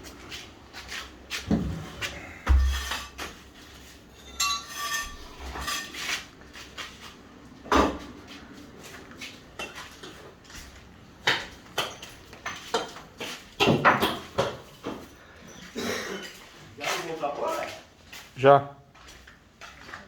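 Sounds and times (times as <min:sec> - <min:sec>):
metallic clink: 0:04.2 - 0:05.9.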